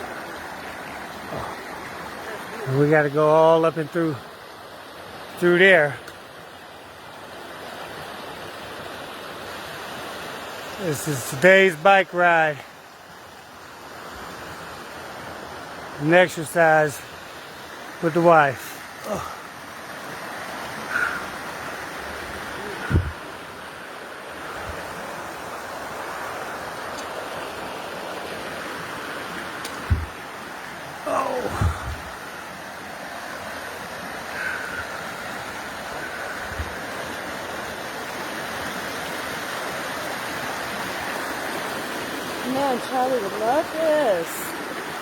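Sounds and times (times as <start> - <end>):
rushing water: 0.0 - 45.0
low thumps: 22.9 - 23.3, 29.8 - 30.2, 31.5 - 32.1.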